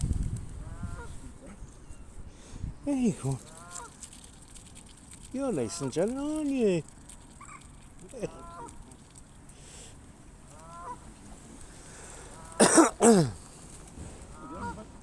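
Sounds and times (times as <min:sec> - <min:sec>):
geese honking: 0:00.6 - 0:01.2, 0:03.5 - 0:04.0, 0:05.4 - 0:06.0, 0:08.3 - 0:08.8, 0:10.5 - 0:11.1, 0:12.2 - 0:12.7, 0:14.3 - 0:14.9.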